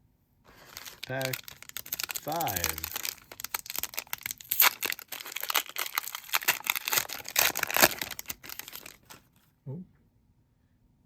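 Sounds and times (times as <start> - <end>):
foil wrapper tearing and crinkling: 0.5 - 9.3.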